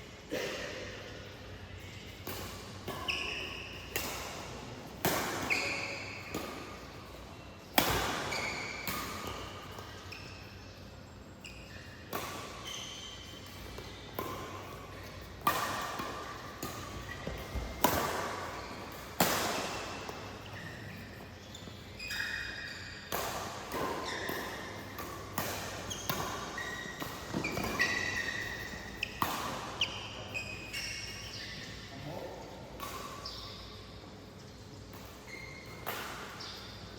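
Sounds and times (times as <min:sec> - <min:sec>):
court shoes squeaking: 0:00.0 - 0:36.9
rackets hitting shuttlecock: 0:02.1 - 0:10.9, 0:11.6 - 0:21.4, 0:22.0 - 0:31.6, 0:32.8 - 0:33.6.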